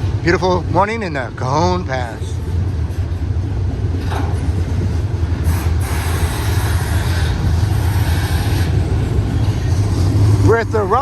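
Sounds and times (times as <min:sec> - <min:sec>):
diesel locomotive drone: 0:00.0 - 0:11.0
hiss of wheels on rail: 0:04.0 - 0:11.0.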